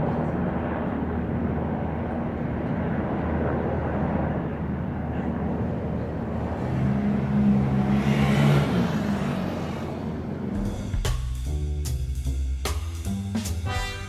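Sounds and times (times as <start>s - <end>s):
distant aircraft engines droning: 0.0s - 11.7s
steady low tones: 9.8s - 14.0s.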